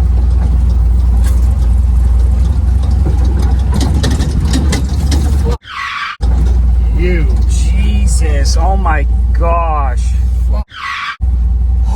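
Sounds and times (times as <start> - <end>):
rattles and knocks: 0.0 - 5.6, 6.2 - 9.4
truck engine rumbling: 0.0 - 11.9.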